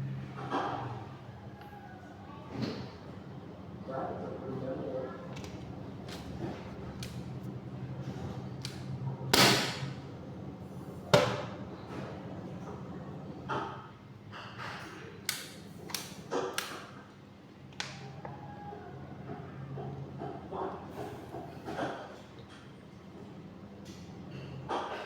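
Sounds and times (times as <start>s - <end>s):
ceiling fan being smashed: 8.6s - 10.0s.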